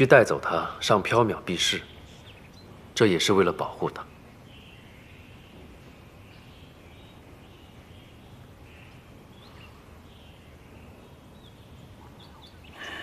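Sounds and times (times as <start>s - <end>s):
distant bird chirps: 0.0s - 13.0s.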